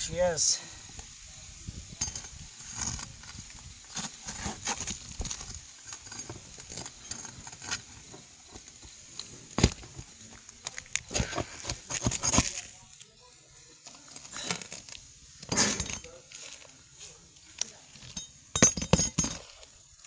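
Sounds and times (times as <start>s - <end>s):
scraping roof shingles: 3.9s - 12.9s.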